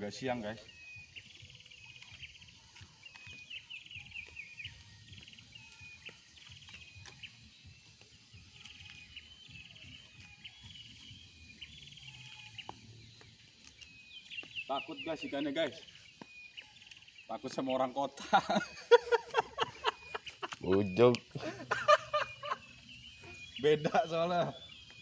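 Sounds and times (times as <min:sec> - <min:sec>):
small birds trilling: 0:00.0 - 0:25.0.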